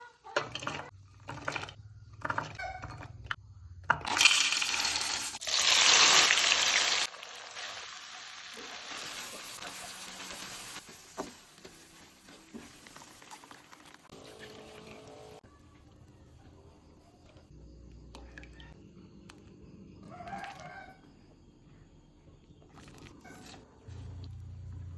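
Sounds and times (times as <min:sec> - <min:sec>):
food sizzling in hot oil: 0:04.1 - 0:14.7.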